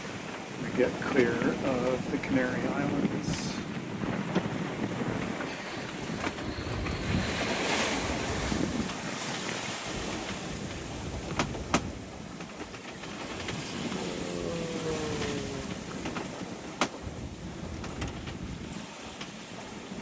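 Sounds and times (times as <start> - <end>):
rushing waves: 0.0 - 20.0
wind: 0.0 - 20.0
wind buffeting microphone: 0.0 - 20.0.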